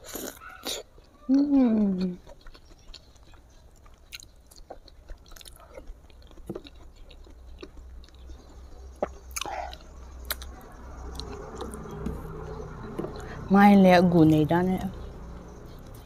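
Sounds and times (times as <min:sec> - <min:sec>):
person chewing with wet smacks: 0:00.0 - 0:13.4.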